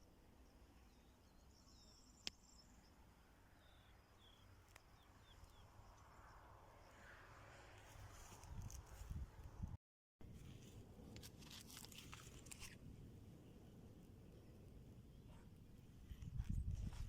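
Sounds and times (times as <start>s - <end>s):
faint birds chirping: 0.0s - 7.6s.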